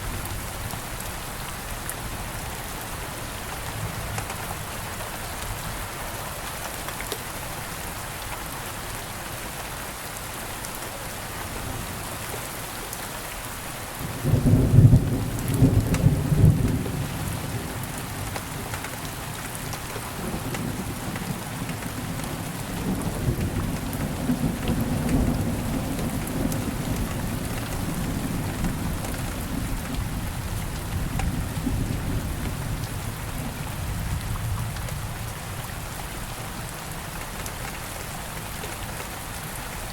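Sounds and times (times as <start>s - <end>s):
steady rain falling: 0.0s - 39.9s
low rolling thunder: 14.2s - 17.9s, 22.7s - 35.2s.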